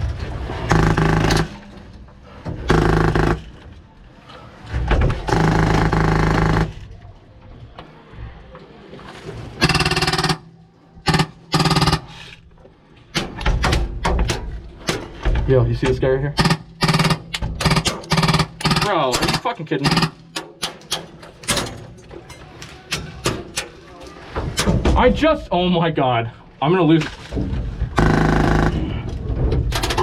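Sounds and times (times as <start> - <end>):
airsoft machine gun bursts: 0.7 - 1.6, 2.7 - 3.5, 5.3 - 6.8, 9.6 - 12.3, 16.4 - 20.3, 28.0 - 29.0.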